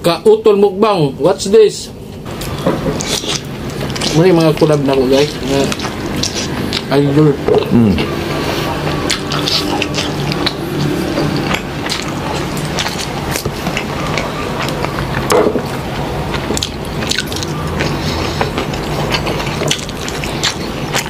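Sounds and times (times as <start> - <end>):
low steady hum: 0.0 - 21.0
chewing food: 2.3 - 21.0
wet smacks and mouth clicks: 2.4 - 7.0, 8.8 - 21.0.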